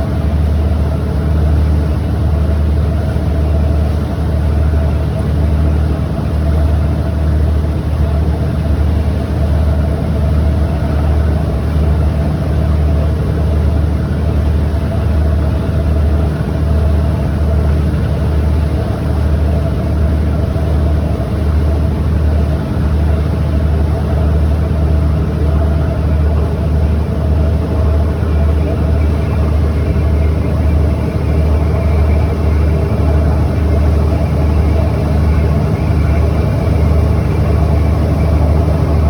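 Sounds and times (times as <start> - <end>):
low engine drone: 0.0 - 39.0.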